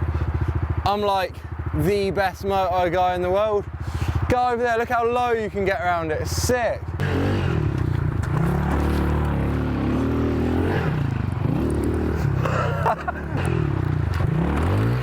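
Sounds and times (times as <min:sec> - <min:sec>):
dirt bike engine revving: 0:06.9 - 0:15.0.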